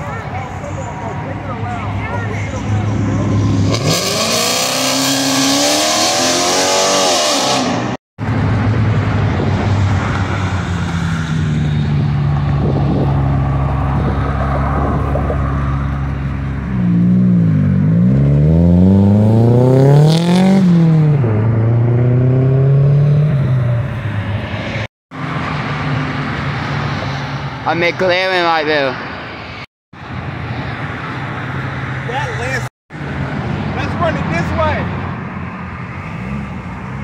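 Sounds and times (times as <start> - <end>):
car engines accelerating: 0.0 - 28.9
engine revving with gear changes: 3.2 - 8.0, 16.7 - 23.6.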